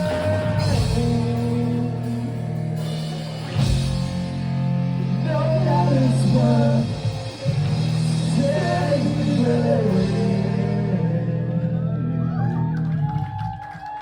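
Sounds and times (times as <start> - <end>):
person singing: 0.0 - 3.2, 5.0 - 12.6
rock band playing: 0.0 - 13.0.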